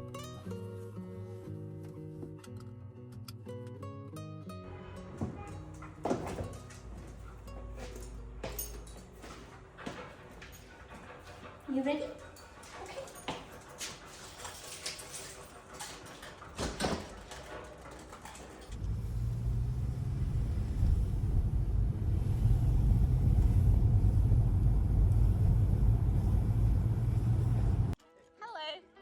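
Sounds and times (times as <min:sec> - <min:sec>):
car rumbling in motion: 0:15.6 - 0:28.0.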